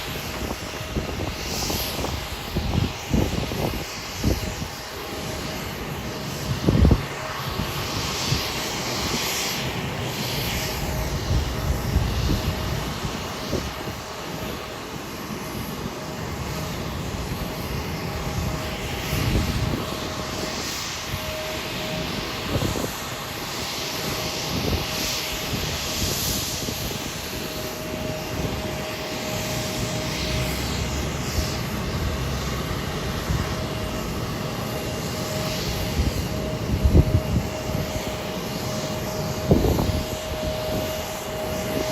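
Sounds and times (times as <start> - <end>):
faint engine whine: 0.0 - 41.9
jet engines rushing: 0.0 - 41.9.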